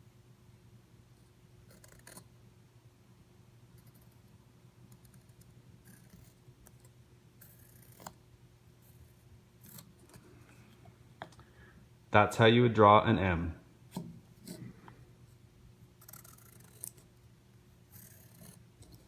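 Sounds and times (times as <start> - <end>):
low electrical hum: 0.0 - 19.0
pencil scratching on wood: 4.9 - 8.2, 16.0 - 17.1, 17.9 - 19.0.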